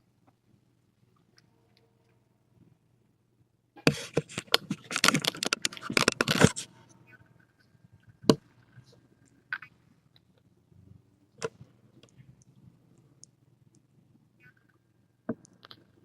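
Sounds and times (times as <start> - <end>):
crackling handling noise: 3.8 - 10.5.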